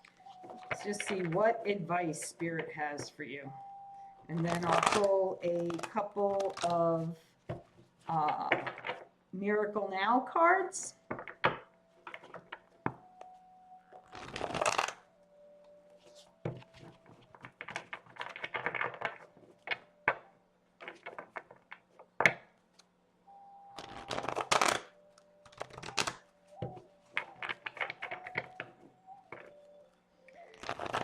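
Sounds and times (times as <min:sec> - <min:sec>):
cards being shuffled: 0:04.3 - 0:09.0, 0:11.1 - 0:13.4, 0:14.0 - 0:15.0, 0:15.9 - 0:20.2, 0:20.8 - 0:22.9, 0:23.8 - 0:29.7, 0:30.4 - 0:31.0.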